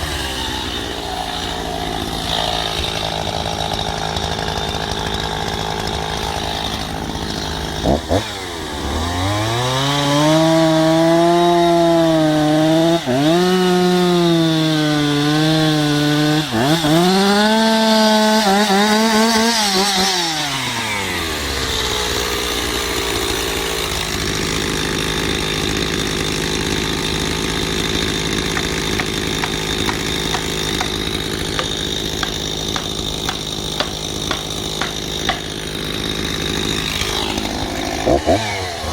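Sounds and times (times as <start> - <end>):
chainsaw revving and cutting wood: 0.0 - 38.9.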